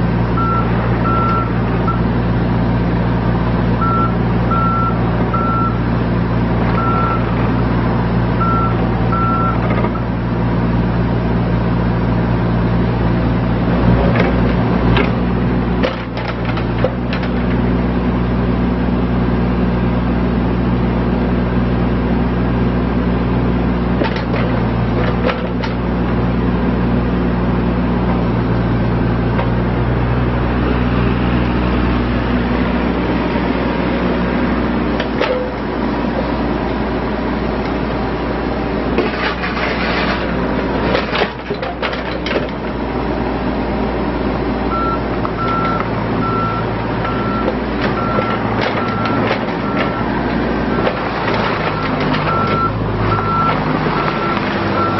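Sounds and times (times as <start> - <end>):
excavator diesel engine running: 0.0 - 54.9
travel alarm beeping: 0.4 - 2.0, 3.8 - 5.8, 6.8 - 7.3, 8.4 - 10.0, 44.7 - 50.1.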